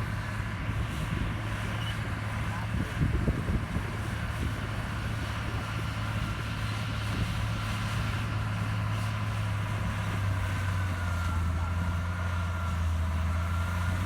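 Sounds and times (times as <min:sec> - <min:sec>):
heavy diesel engine running: 0:00.0 - 0:14.0.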